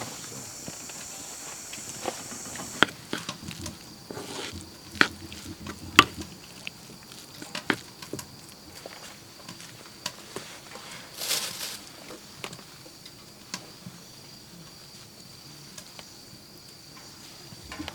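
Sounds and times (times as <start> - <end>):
steady high hiss: 0.0 - 4.8
wood fire crackling: 0.0 - 8.5.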